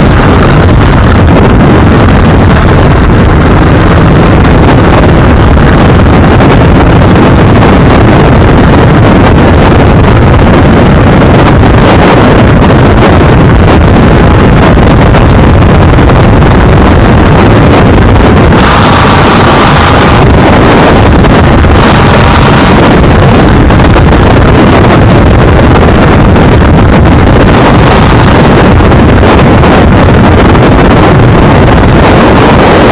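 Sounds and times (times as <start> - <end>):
road and engine noise: 0.0 - 32.9
wind buffeting microphone: 0.0 - 32.9
steady pitched tone: 16.3 - 32.9.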